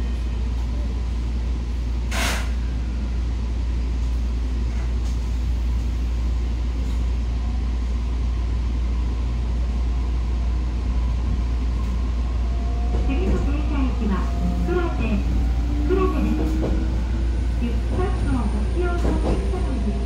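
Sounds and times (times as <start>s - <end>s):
train wheels rumbling on rail: 0.0s - 20.0s
short hiss: 2.1s - 2.6s.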